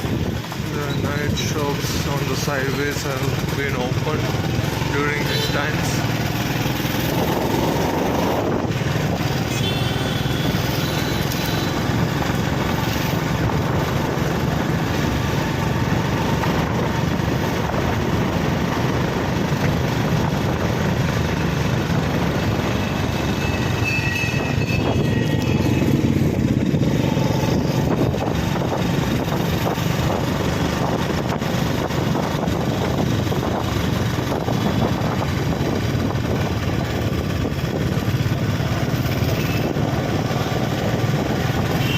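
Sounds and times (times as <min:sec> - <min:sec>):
motorcycles: 0:00.0 - 0:41.9
vehicle engines passing: 0:00.0 - 0:41.9.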